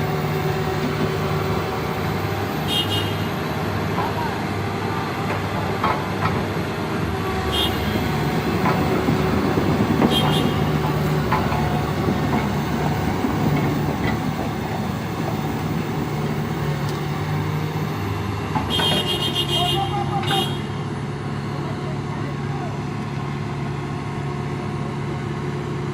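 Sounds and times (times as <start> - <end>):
knocks and clatter: 8.5 - 15.4.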